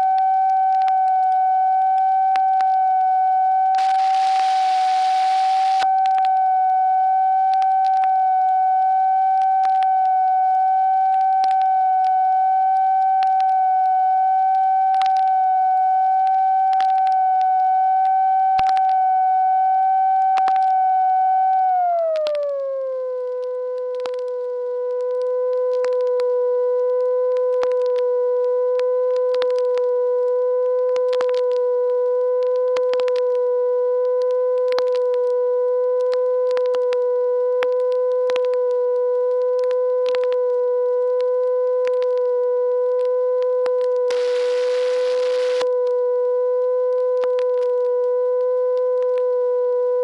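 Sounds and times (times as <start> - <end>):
steady pitched tone: 0.0 - 17.5, 30.4 - 49.3
sharp clicks: 3.8 - 6.2, 43.8 - 45.7.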